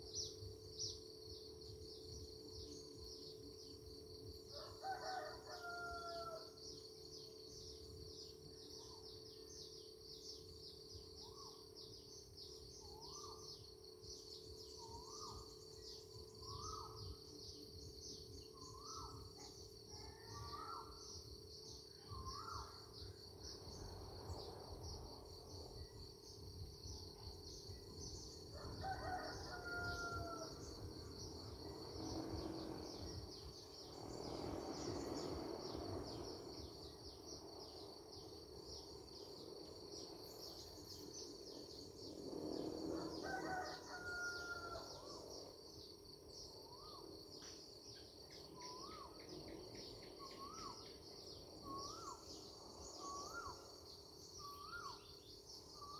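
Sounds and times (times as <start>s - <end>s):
high-pitched insect trill: 0.0s - 55.9s
rooster crowing: 4.5s - 6.5s, 28.6s - 30.8s, 43.0s - 45.2s.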